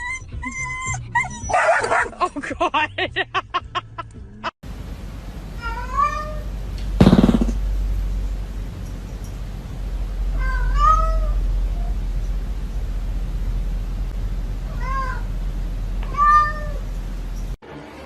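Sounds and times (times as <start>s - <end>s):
steady low hum: 4.7s - 17.6s
cat meowing: 5.6s - 6.4s, 10.4s - 11.9s, 14.7s - 15.3s, 16.0s - 16.8s.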